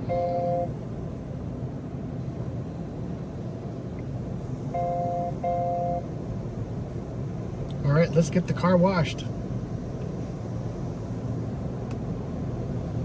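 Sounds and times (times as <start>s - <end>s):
car warning chime beeping: 0.0s - 0.8s, 4.7s - 6.2s
steady low rumble: 0.0s - 13.0s.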